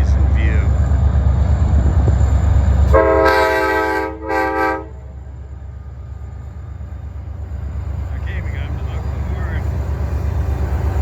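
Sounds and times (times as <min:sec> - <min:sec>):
low train rumble: 0:00.0 - 0:11.0
locomotive air horn blasts: 0:02.9 - 0:05.1.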